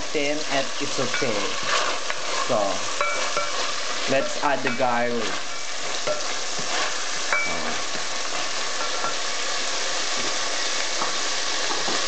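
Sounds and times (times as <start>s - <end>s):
meat sizzling in a pot: 0.0s - 12.0s
spoon stirring: 0.8s - 9.3s.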